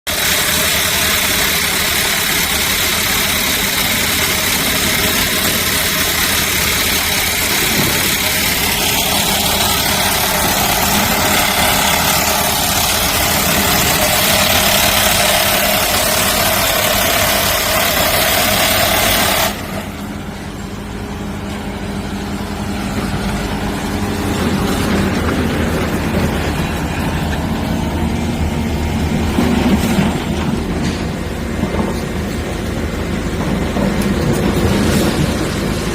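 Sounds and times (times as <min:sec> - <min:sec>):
construction machinery engine droning: 0:00.1 - 0:35.9.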